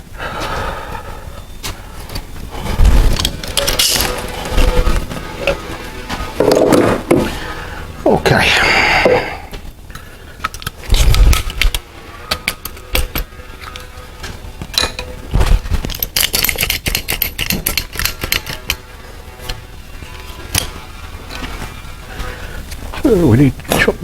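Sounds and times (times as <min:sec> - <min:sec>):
caulking gun clicking and knocking: 0:15.9 - 0:18.8.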